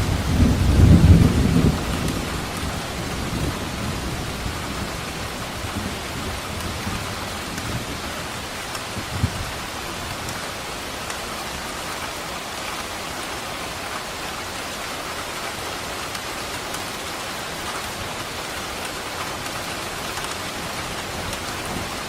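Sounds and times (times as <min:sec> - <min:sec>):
low thunder rumble: 0:00.0 - 0:08.1
heavy rain: 0:00.0 - 0:22.0.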